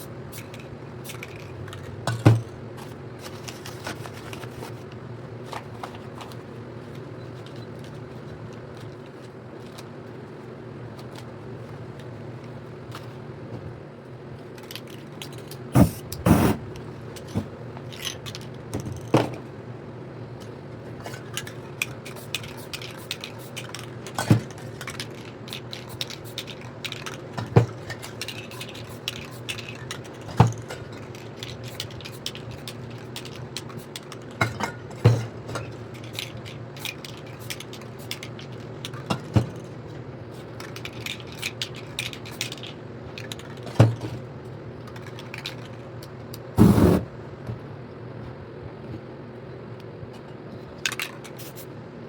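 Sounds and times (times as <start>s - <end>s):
spray cans and tools handled: 14.8s - 19.1s, 46.5s - 47.1s, 51.0s - 51.7s.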